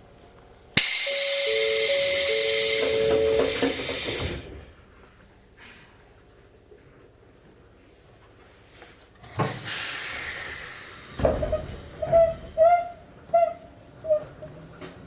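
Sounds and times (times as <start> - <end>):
compressed air hiss: 0.8 - 4.7, 9.4 - 11.3
train doors thudding shut: 0.8 - 4.8.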